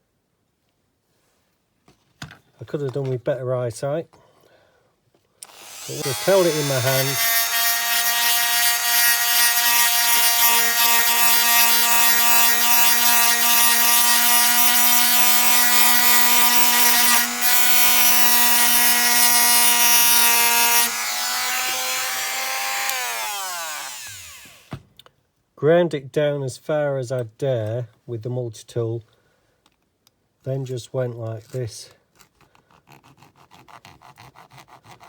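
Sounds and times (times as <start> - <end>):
rotary tool whining: 5.4 - 24.8
grinding rasp on metal: 5.6 - 24.6.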